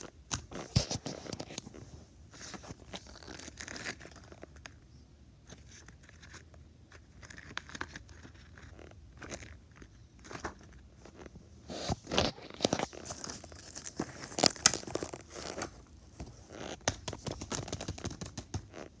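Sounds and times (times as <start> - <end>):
plastic packaging crinkling: 2.5 - 4.8, 7.0 - 19.0.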